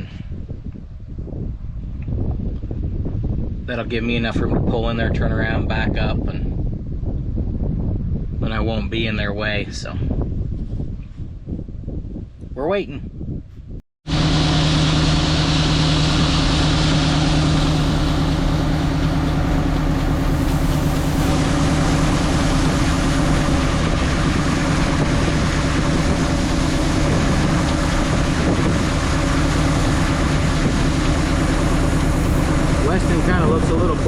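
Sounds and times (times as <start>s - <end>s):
diesel farm machinery engine: 14.0s - 34.0s.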